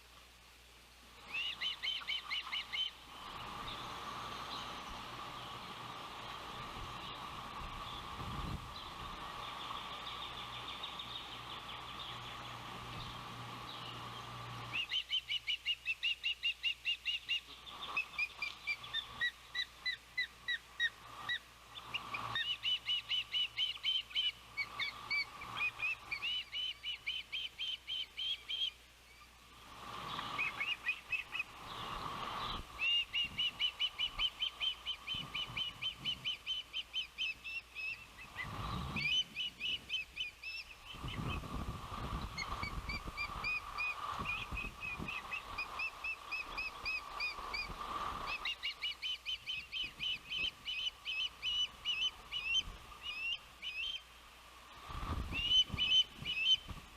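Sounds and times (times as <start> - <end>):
ospreys chirping: 1.2 - 54.2, 54.8 - 56.8
wind buffeting microphone: 6.5 - 9.9, 38.2 - 39.9, 40.8 - 48.5, 54.8 - 56.9.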